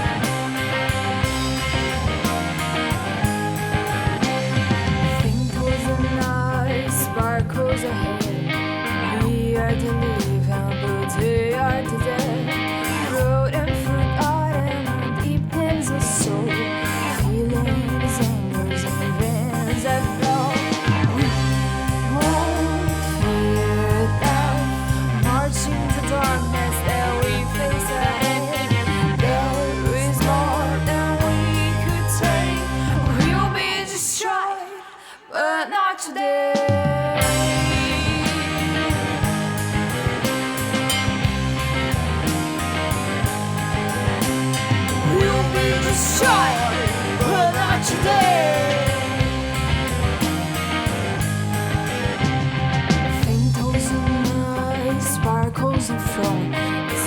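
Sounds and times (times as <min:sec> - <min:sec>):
steady drum beat: 0:00.0 - 0:06.5, 0:19.3 - 0:33.6, 0:37.2 - 0:53.6
pitch-bending melodic line: 0:00.0 - 0:08.2, 0:19.4 - 0:33.8, 0:37.2 - 0:53.2
held bass line: 0:00.0 - 0:33.8, 0:37.2 - 0:57.0
rock band music: 0:00.0 - 0:34.1, 0:36.7 - 0:57.0.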